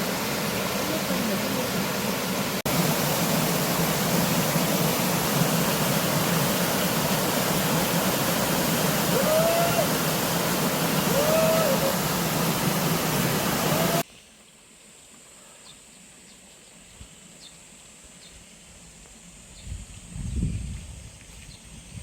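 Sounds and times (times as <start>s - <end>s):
rushing stream and waterfall: 0.0s - 14.1s
rising and falling call: 9.0s - 14.0s.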